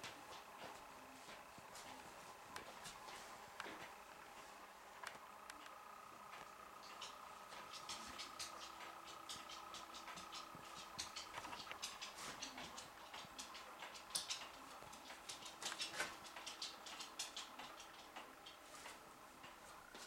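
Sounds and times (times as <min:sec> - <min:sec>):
light clicking and tapping: 0:05.0 - 0:20.0.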